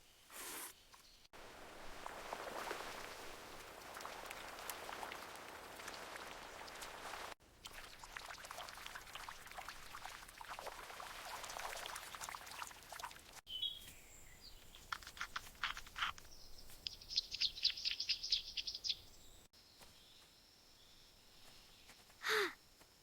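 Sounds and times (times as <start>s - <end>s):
faint forest ambience: 0.0s - 23.0s
water splashing: 1.4s - 13.5s, 14.4s - 19.3s
bird chirping: 13.5s - 20.2s
falling bird whistle: 16.9s - 19.0s.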